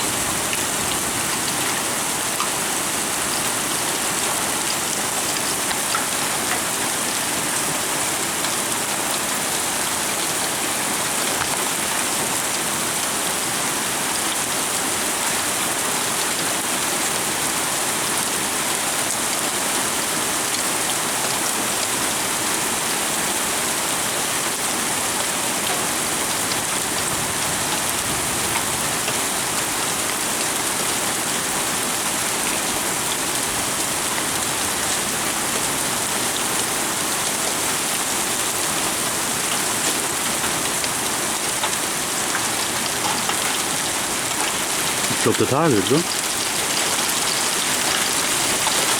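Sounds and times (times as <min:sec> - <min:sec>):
heavy rain pouring: 0:00.0 - 0:48.9.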